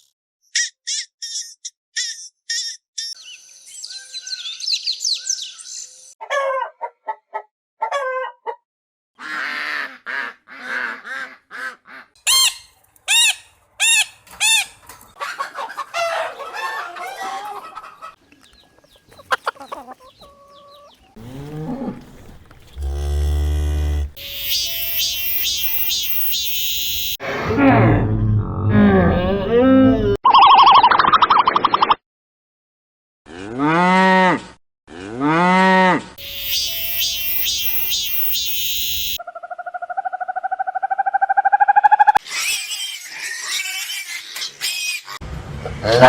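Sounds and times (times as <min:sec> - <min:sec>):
chickens clucking: 0:06.2 - 0:08.6, 0:14.2 - 0:21.2
deep animal call: 0:21.2 - 0:24.9
high-pitched pips: 0:24.1 - 0:27.2, 0:36.2 - 0:39.2.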